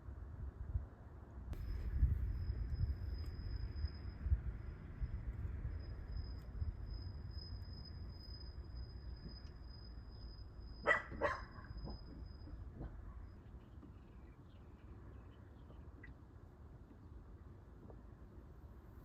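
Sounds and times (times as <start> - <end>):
low rumble: 1.5 - 10.8
faint high-pitched tone: 1.6 - 10.8
dog barking: 10.8 - 11.8.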